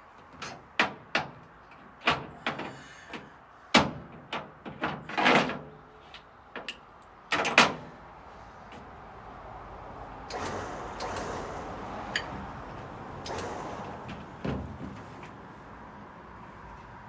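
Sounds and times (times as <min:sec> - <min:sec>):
sharp knocks and bangs: 0:10.3 - 0:15.4.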